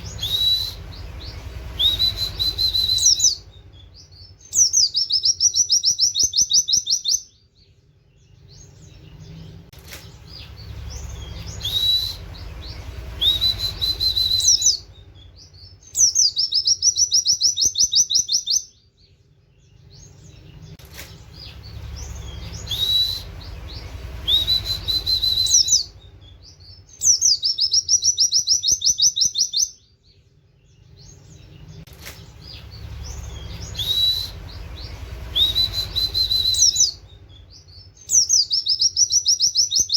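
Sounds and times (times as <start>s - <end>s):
bird upslurred whistles: 0.0s - 3.5s, 11.0s - 14.9s, 22.0s - 26.0s, 33.2s - 39.9s
bird fast descending trill: 10.3s - 15.0s, 21.3s - 26.0s, 32.4s - 37.1s.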